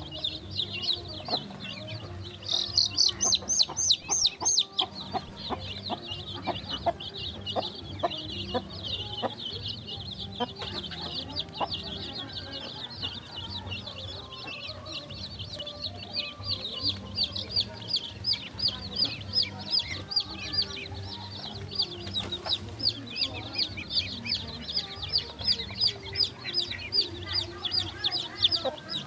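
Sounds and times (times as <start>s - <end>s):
chicks peeping: 0.0s - 29.0s.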